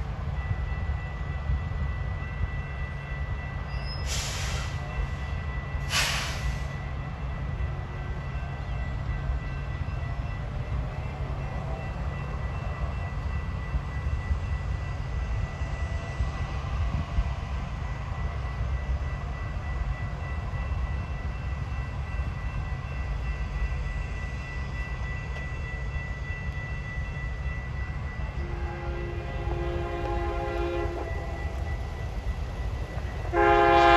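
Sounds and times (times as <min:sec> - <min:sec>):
electric train rumbling: 0:00.0 - 0:33.9
train horn: 0:28.3 - 0:32.0, 0:33.0 - 0:33.9.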